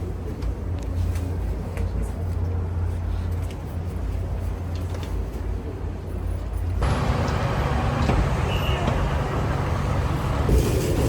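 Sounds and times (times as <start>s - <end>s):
low vehicle rumble: 6.6s - 11.0s
hissy traffic noise: 6.8s - 11.0s.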